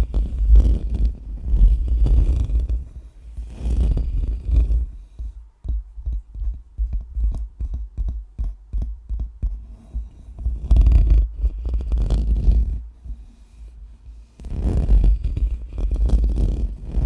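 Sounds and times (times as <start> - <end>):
microphone being scratched: 0.0 - 5.0, 10.3 - 12.8, 14.4 - 17.0.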